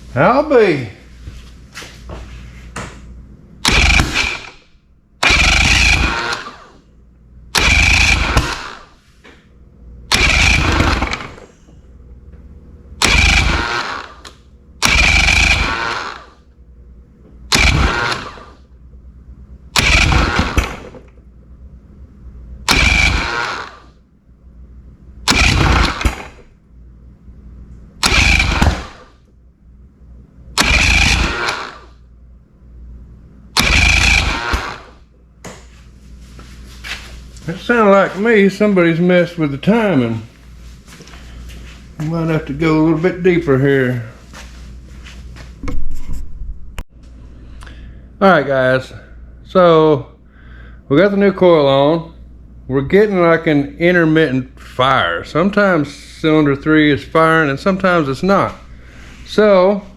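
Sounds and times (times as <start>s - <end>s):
outboard motor running roughly: 3.6s - 4.6s, 5.2s - 6.7s, 7.5s - 8.9s, 10.1s - 11.4s, 13.0s - 14.2s, 14.8s - 16.4s, 17.5s - 18.6s, 19.7s - 21.0s, 22.7s - 23.8s, 25.2s - 26.4s, 28.0s - 29.0s, 30.6s - 31.8s, 33.6s - 34.9s.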